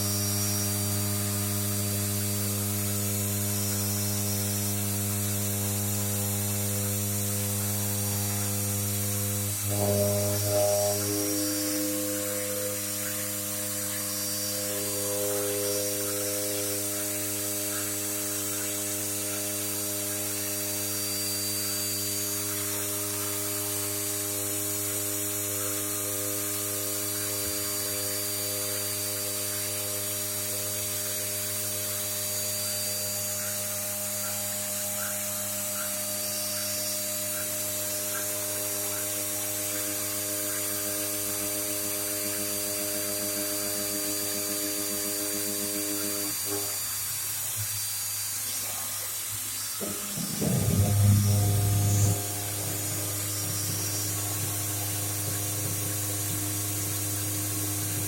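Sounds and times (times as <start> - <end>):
high steady whine: 0.0 - 58.0
machine motor hum: 0.0 - 58.0.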